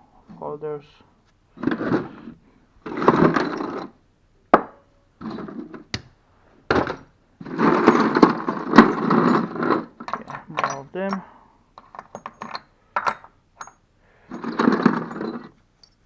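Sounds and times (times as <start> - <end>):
metal drill bits rattling: 7.4 - 11.2, 11.8 - 15.6.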